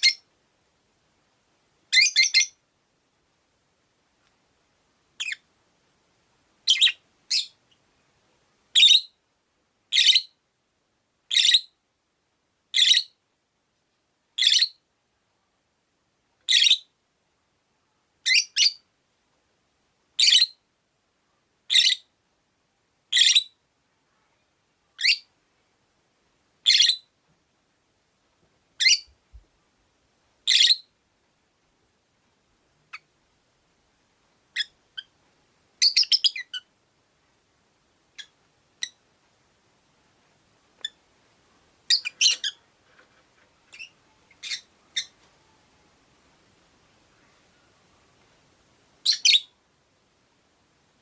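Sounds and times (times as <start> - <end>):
lovebird high-pitched calls: 0.0 - 0.3, 1.9 - 2.6, 5.2 - 5.4, 6.6 - 7.6, 8.7 - 9.2, 9.9 - 10.4, 11.3 - 11.8, 12.7 - 13.2, 14.4 - 14.8, 16.5 - 16.9, 18.2 - 18.8, 20.2 - 20.6, 21.7 - 22.1, 23.1 - 23.6, 25.0 - 25.3, 26.6 - 27.1, 28.8 - 29.1, 30.4 - 30.9, 34.5 - 35.2, 35.8 - 36.7, 38.2 - 39.0, 40.8 - 41.0, 41.8 - 42.7, 43.7 - 45.2, 49.0 - 49.6.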